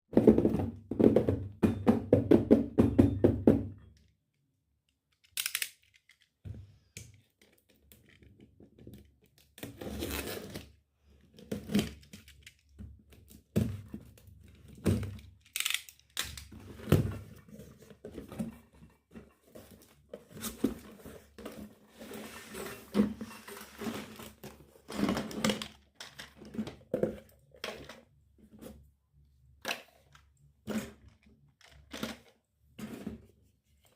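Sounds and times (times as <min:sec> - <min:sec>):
toy pieces knocking and clicking: 0:05.1 - 0:06.4, 0:15.4 - 0:16.5.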